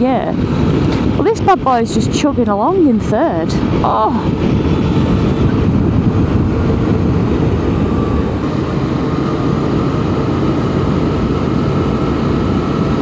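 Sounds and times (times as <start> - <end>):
motorcycle engine pulling uphill: 0.0 - 13.0
rush of riding wind: 0.0 - 13.0
faint rising whine: 3.2 - 13.0.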